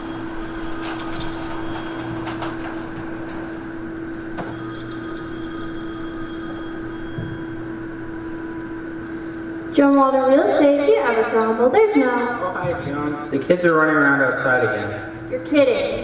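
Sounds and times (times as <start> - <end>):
telephone ringing: 0.0 - 9.7
low hum: 0.0 - 16.0.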